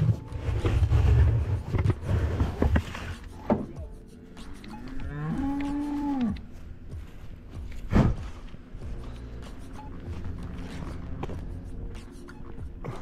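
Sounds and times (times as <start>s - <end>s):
cow mooing: 4.7s - 6.4s.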